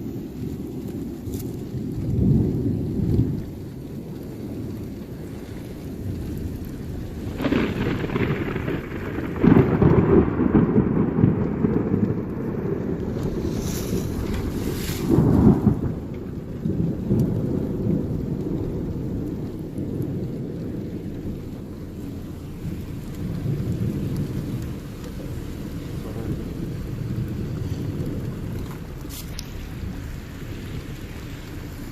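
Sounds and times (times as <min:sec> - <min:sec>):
rain: 0:00.0 - 0:31.9
thunder rumbling: 0:00.0 - 0:31.9.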